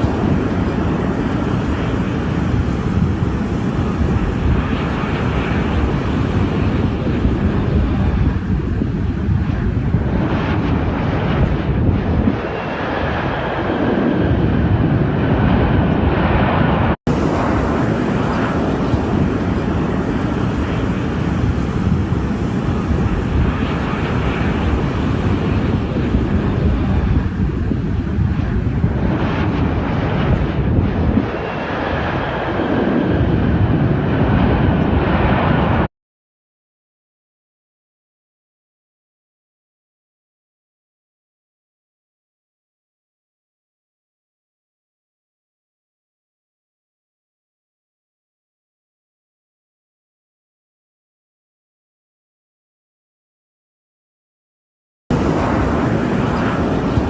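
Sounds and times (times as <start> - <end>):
jet engine noise: 0.0 - 35.9, 55.1 - 57.0
wind rumble on microphone: 0.0 - 35.9, 55.1 - 57.0.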